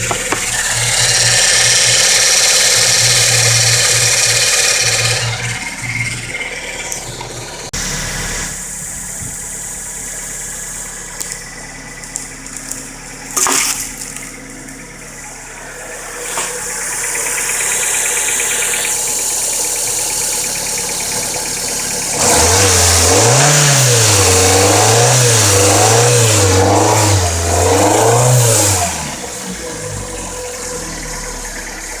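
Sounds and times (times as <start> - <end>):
sharp engine knock: 0.0 - 5.2
car engine idling and revving: 0.0 - 32.0.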